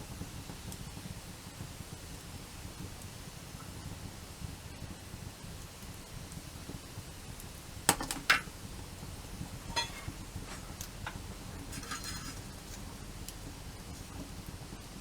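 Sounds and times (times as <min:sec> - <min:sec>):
wood fire crackling: 0:00.0 - 0:15.0
sharp pops of fire: 0:05.0 - 0:14.9.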